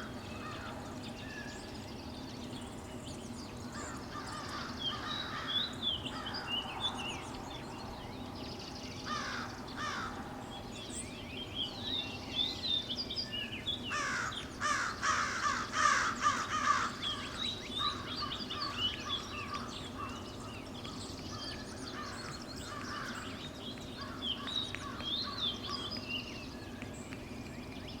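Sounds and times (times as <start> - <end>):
wild birds chirping: 0.0 - 28.0.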